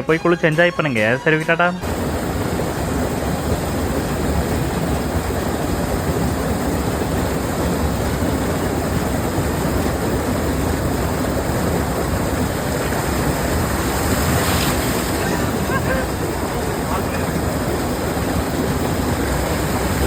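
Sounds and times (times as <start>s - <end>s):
waterfall rushing: 10.5s - 20.0s.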